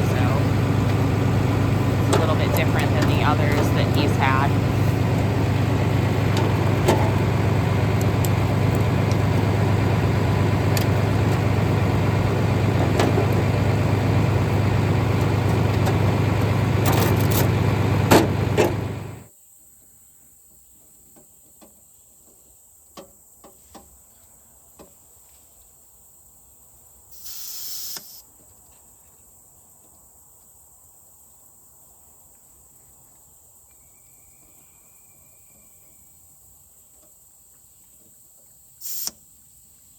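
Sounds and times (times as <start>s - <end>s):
tractor engine running: 0.0s - 19.3s
insects chirping: 25.9s - 37.5s
brief hiss: 27.1s - 28.2s, 38.8s - 39.2s.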